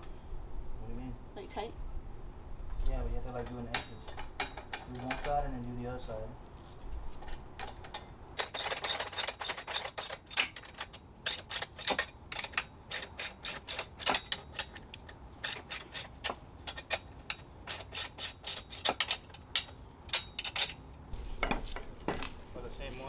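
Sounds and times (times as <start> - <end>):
socket ratchet clicking: 8.4 - 16.3, 17.7 - 19.3.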